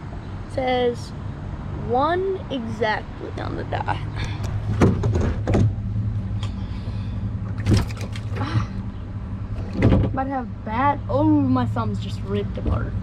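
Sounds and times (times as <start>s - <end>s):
steady low hum: 0.0s - 13.0s
sharp knocks and clicks: 4.4s - 5.8s.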